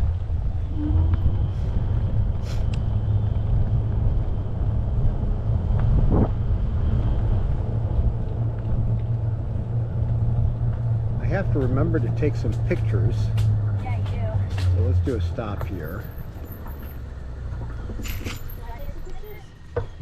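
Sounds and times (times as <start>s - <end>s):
wind buffeting microphone: 0.0s - 15.1s.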